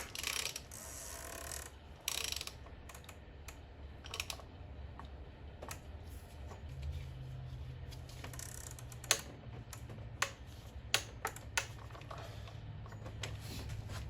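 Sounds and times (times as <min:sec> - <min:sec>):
low steady hum: 0:00.0 - 0:14.0
tool clicking and tapping on cap: 0:08.9 - 0:12.0.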